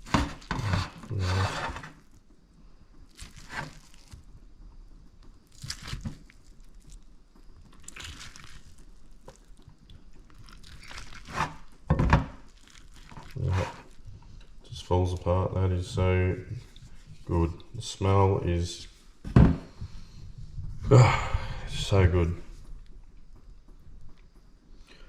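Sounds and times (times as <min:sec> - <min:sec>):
spatula scraping meat: 0:00.0 - 0:02.2, 0:03.2 - 0:04.2, 0:10.6 - 0:11.9, 0:12.6 - 0:14.4.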